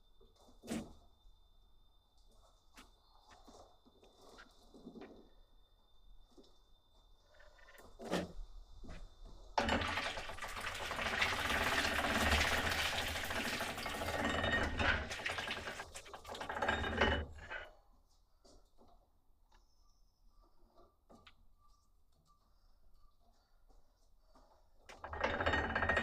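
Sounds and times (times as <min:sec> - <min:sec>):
grape crusher rattling: 0:09.6 - 0:17.7, 0:24.9 - 0:26.0.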